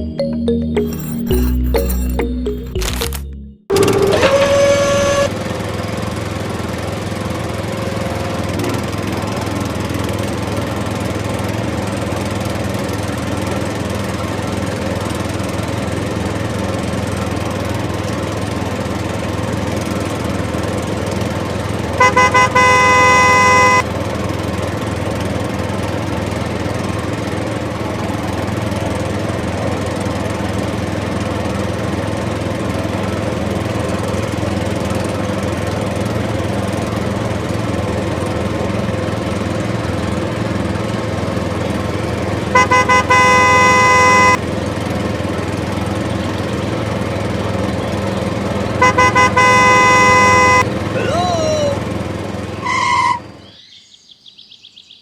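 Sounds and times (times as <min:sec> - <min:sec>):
horn tooting: 0:03.7 - 0:05.6, 0:21.9 - 0:23.9, 0:42.4 - 0:44.4, 0:48.7 - 0:51.9, 0:52.6 - 0:53.4.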